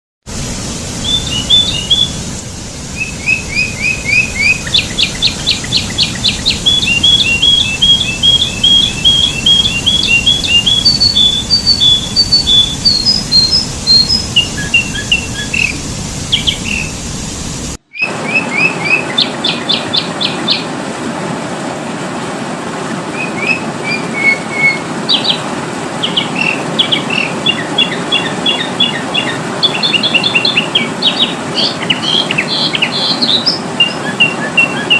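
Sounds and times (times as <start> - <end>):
faint steady hum: 0.3 - 17.9
bulbul chirping: 1.0 - 2.2, 3.0 - 17.1.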